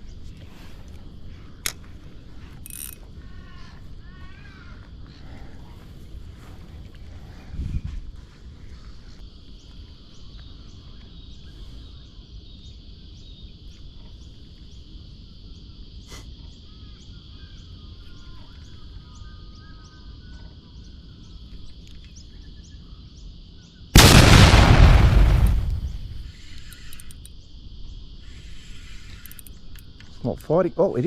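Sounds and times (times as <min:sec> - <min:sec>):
low wind rumble: 0:00.0 - 0:08.7, 0:24.0 - 0:26.6
faint bird calls: 0:02.8 - 0:06.1, 0:15.4 - 0:23.7
high-pitched insect drone: 0:26.1 - 0:31.0.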